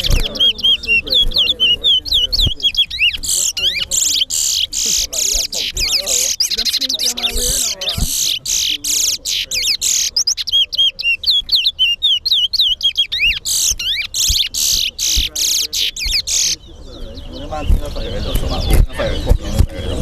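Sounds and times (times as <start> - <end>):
bird singing whistled trills: 0.0 - 20.0.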